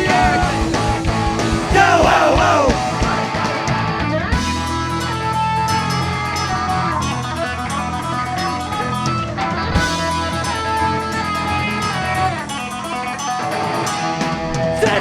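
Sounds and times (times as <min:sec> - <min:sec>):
electric guitar: 0:00.0 - 0:15.0
rock band playing: 0:00.0 - 0:15.0.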